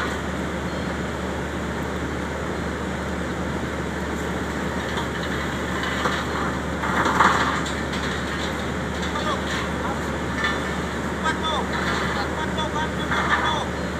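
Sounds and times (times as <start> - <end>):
diesel engine droning: 0.0 - 13.9.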